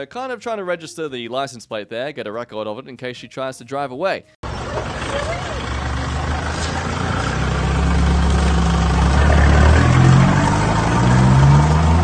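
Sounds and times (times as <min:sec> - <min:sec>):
car engine running: 0:04.4 - 0:12.0.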